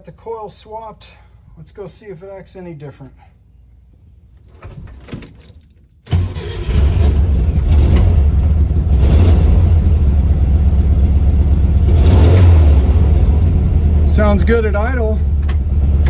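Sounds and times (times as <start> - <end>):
car engine starting and idling: 6.1 - 16.0.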